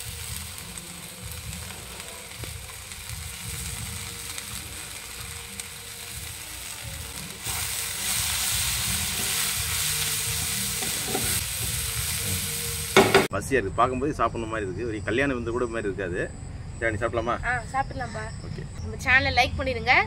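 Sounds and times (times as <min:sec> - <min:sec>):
food sizzling in a frying pan: 0:00.0 - 0:13.3.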